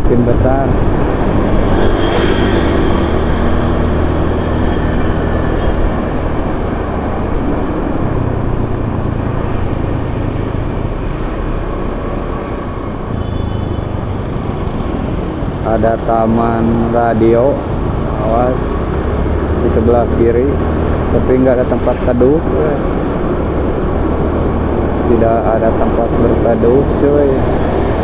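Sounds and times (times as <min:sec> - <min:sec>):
wind on microphone: 0:00.0 - 0:13.2.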